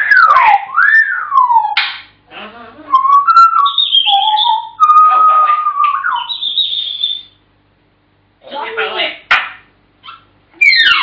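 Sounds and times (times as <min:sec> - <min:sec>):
parrot whistling: 0:00.0 - 0:01.8, 0:02.9 - 0:07.4, 0:10.0 - 0:11.0
parrot raspy call: 0:00.0 - 0:07.4, 0:10.0 - 0:11.0.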